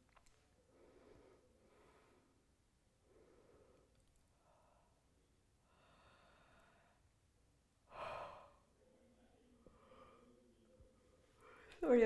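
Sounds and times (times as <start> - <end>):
person breathing softly: 0.6 - 7.2, 7.9 - 11.8.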